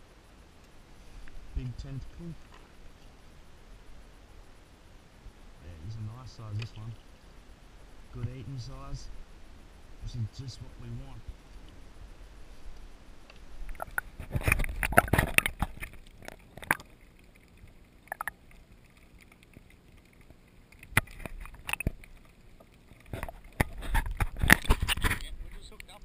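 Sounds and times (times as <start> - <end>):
water splashing: 0.8 - 26.0
knocks and clatter on kayak: 13.7 - 16.9, 20.8 - 25.8.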